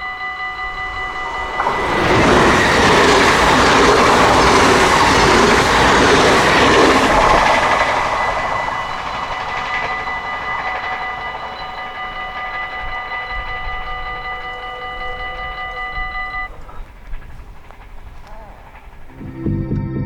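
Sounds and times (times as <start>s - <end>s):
level crossing bell ringing: 0.0s - 16.6s
train wheels rushing on rails: 0.0s - 19.7s.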